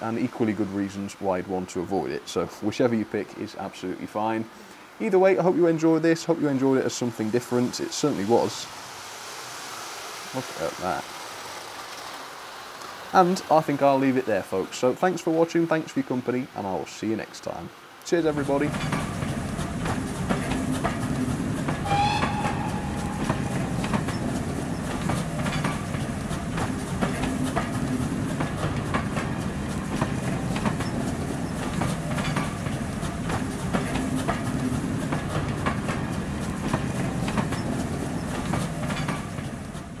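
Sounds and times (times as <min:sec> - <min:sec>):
train rumbling past: 0:00.0 - 0:16.8, 0:17.4 - 0:40.0
wheels clicking over rail joints: 0:10.4 - 0:14.5, 0:18.0 - 0:40.0
high squeal: 0:21.8 - 0:25.0.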